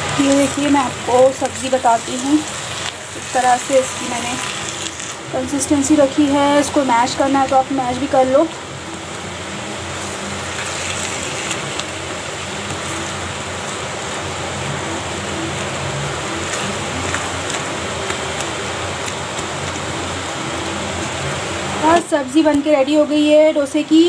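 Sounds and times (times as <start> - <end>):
potato filling sizzling in a pan: 0.0 - 24.0.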